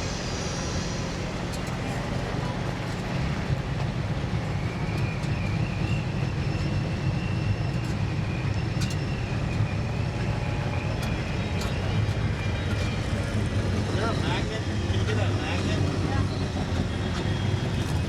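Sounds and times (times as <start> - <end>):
faint high whine: 0.0 - 3.0.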